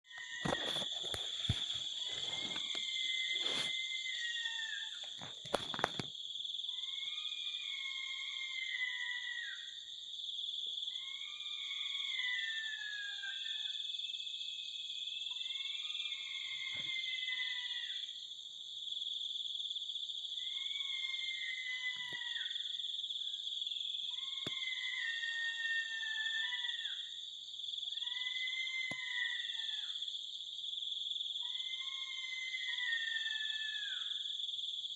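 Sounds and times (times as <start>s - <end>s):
insects chorus: 0.0s - 34.9s
animal call falling in pitch: 21.6s - 22.5s, 28.2s - 29.9s.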